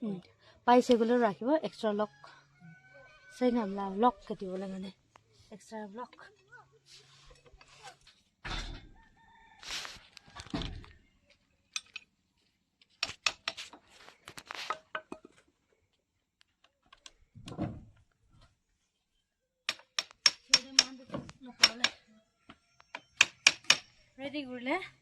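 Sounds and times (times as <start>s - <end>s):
rooster crowing: 2.2s - 3.7s, 8.9s - 10.7s
metal tools clicking and clinking: 11.7s - 12.1s.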